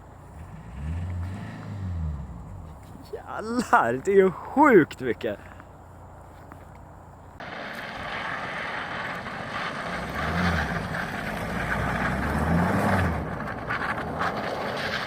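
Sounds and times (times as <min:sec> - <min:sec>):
diesel engine revving: 0:00.0 - 0:03.6, 0:07.4 - 0:15.0.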